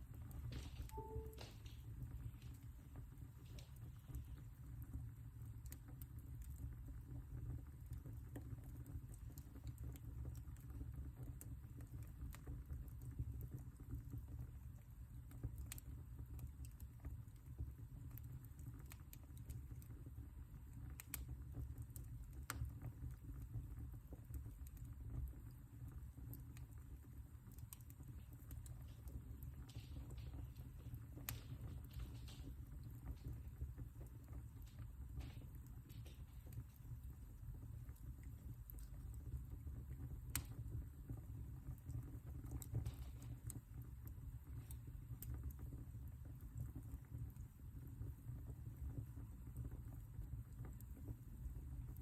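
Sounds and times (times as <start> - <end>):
fire crackling: 0.0 - 52.0.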